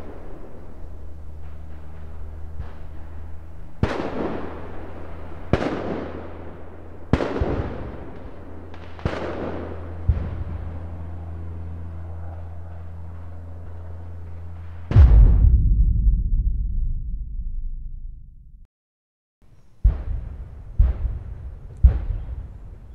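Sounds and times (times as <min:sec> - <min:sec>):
low steady hum: 0:00.0 - 0:07.1, 0:09.6 - 0:18.7
distant gunshots with echo: 0:00.0 - 0:14.0.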